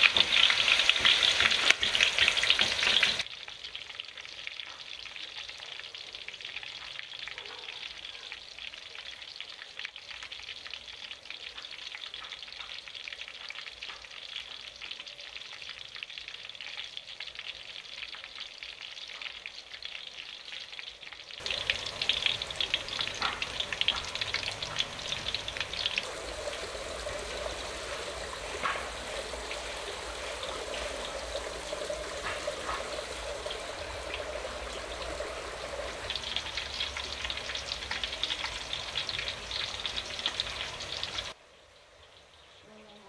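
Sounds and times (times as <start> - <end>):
food frying in hot oil: 0.0 - 41.4.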